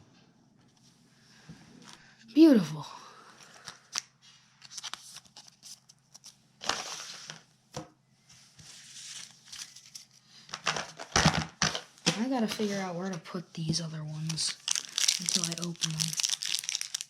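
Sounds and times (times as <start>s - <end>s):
plastic and foil packaging crinkling: 8.8s - 11.1s, 14.1s - 17.0s.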